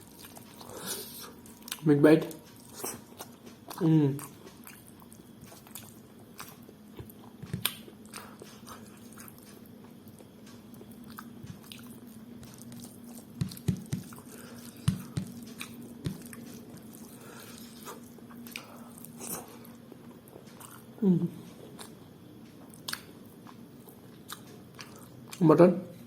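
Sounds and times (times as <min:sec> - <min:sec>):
wet chewing and lip smacks: 0:02.5 - 0:17.2, 0:22.7 - 0:23.6, 0:24.3 - 0:25.4.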